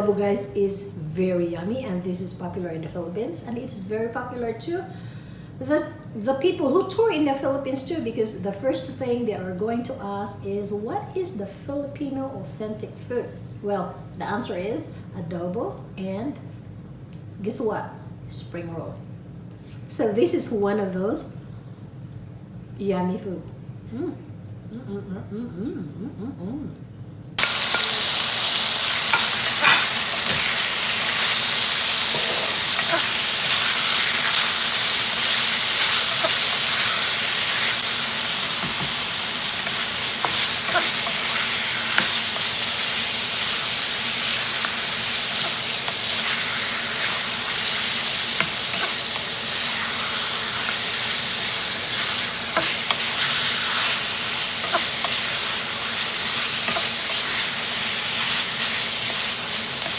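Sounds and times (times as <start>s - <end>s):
food sizzling in oil: 27.4s - 59.9s.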